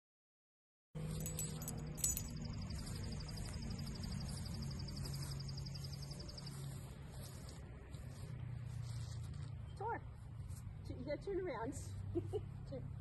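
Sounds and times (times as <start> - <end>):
steady low hum: 1.0 - 9.5.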